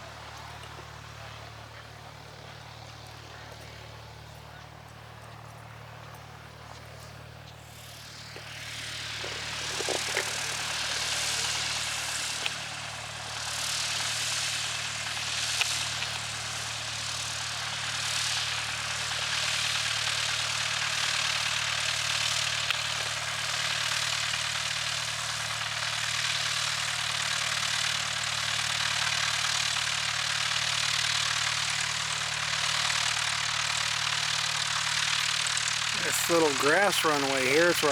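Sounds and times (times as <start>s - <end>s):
propeller airplane engine running: 0.0s - 37.9s.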